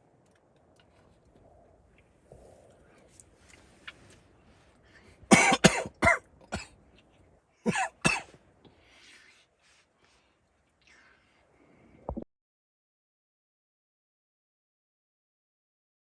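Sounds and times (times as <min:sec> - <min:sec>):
person coughing: 0:05.3 - 0:06.8, 0:07.6 - 0:08.4.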